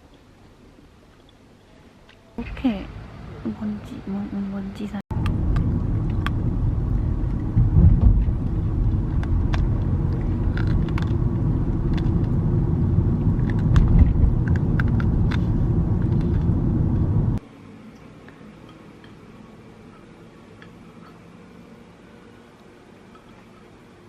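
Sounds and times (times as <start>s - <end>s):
vehicle rumble from inside: 4.9s - 17.4s.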